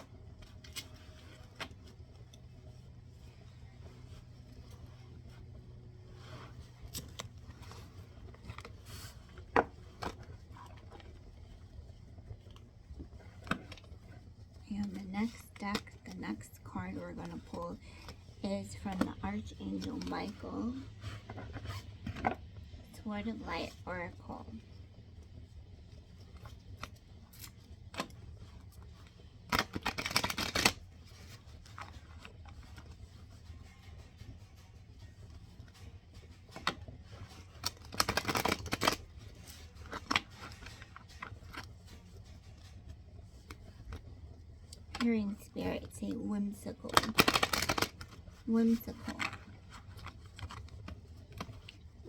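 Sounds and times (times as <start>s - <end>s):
faint low hum: 0.0s - 52.0s
cards being handled: 17.0s - 22.5s, 26.0s - 44.1s, 46.8s - 52.0s.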